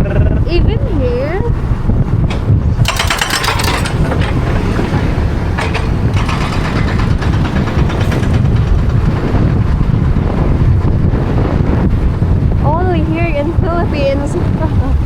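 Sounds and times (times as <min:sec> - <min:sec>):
engine and road noise: 0:00.0 - 0:15.0
wind buffeting microphone: 0:00.0 - 0:15.0
rattling rush: 0:01.1 - 0:14.6.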